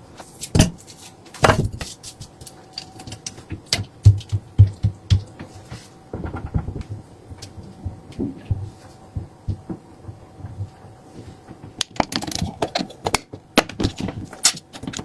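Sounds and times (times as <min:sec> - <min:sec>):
food preparation clicks and knocks: 0:00.4 - 0:10.8, 0:11.5 - 0:15.0
dull thumps: 0:03.5 - 0:05.5, 0:07.8 - 0:10.8.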